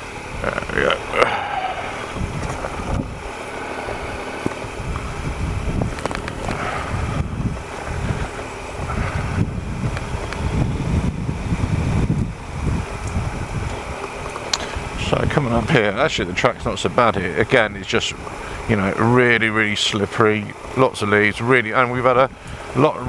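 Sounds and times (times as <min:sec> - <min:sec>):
wind on microphone: 0:00.0 - 0:15.8
motorcycle engine rumbling: 0:00.0 - 0:23.0.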